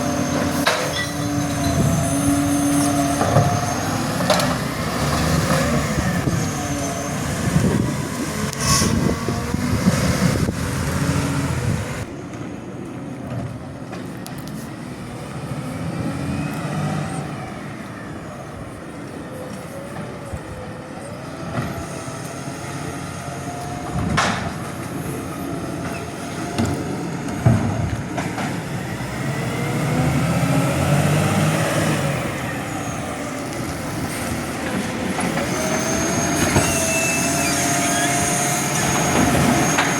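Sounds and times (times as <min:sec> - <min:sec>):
heavy truck engine running: 0:21.5 - 0:39.9.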